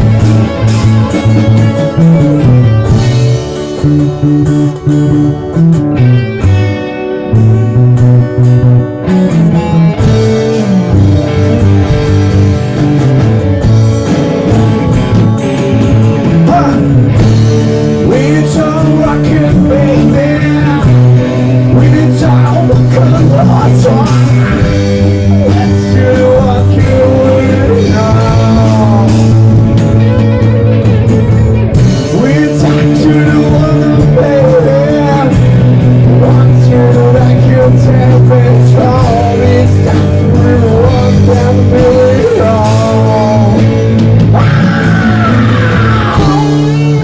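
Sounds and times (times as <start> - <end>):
rock band playing live: 0.0 - 47.0
person singing: 16.2 - 29.9, 31.9 - 47.0.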